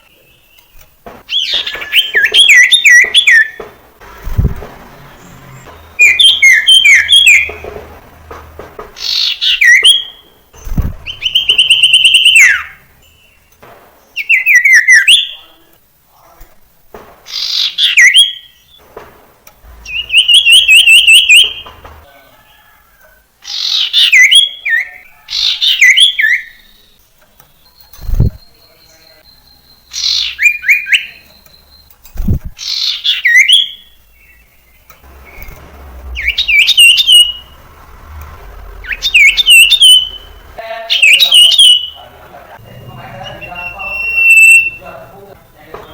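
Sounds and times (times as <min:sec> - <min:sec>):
bird singing whistled notes: 0:00.0 - 0:03.6, 0:05.2 - 0:07.7, 0:09.0 - 0:15.6, 0:19.7 - 0:22.0, 0:23.6 - 0:37.6, 0:38.7 - 0:42.0, 0:42.9 - 0:45.0.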